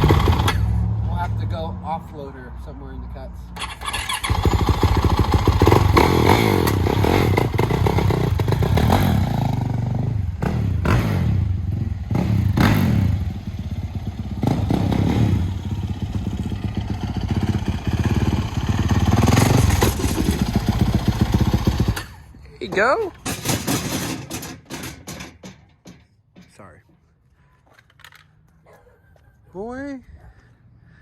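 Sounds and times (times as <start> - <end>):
dirt bike engine revving: 0.0 - 0.8, 3.6 - 22.2.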